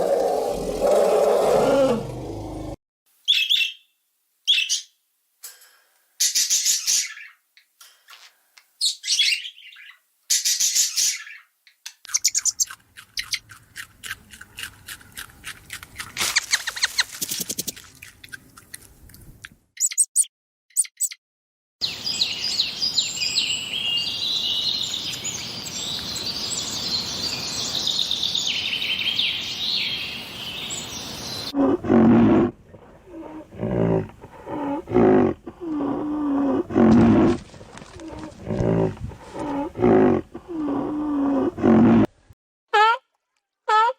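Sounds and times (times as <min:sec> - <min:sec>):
bird chirps and chattering: 0:08.9 - 0:13.5
chorus of birds chirping: 0:21.8 - 0:31.6.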